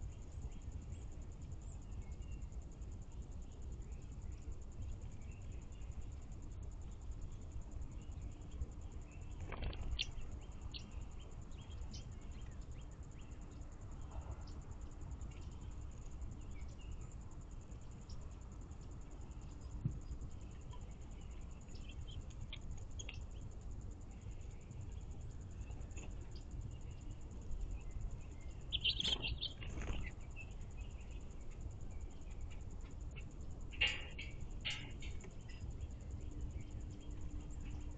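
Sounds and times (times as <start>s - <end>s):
insect trill: 0.0s - 37.9s
low outdoor background hum: 0.0s - 37.9s
bird chirps: 7.3s - 14.6s, 19.4s - 23.5s, 25.6s - 37.9s
bird chirps and chatter: 28.3s - 31.3s.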